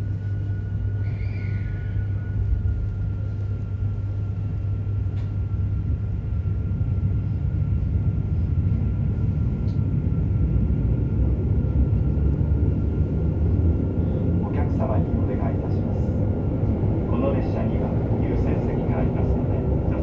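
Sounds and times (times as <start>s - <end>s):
train car rumble: 0.0s - 20.0s
faint steady whine: 13.4s - 20.0s.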